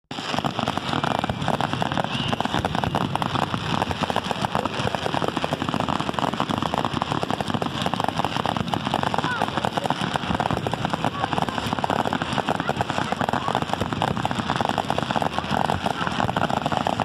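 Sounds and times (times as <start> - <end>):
fireworks crackling: 0.1 - 17.0.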